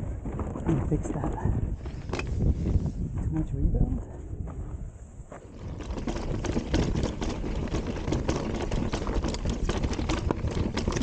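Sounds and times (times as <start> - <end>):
knocks and rattles from bike: 0.0 - 2.9, 5.3 - 11.0
tyre noise on dirt: 0.0 - 3.4, 4.4 - 11.0.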